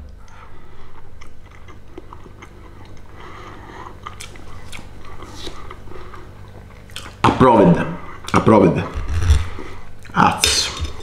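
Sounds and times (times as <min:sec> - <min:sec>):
man chewing: 0:00.1 - 0:07.2.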